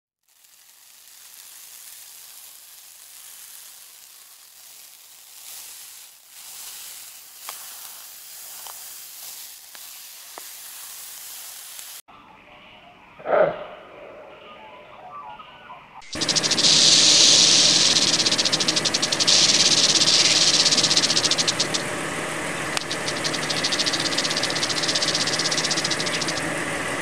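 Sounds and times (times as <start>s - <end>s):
hermit crab shuffling over sand: 0.2s - 12.0s, 16.1s - 21.8s, 22.8s - 26.4s.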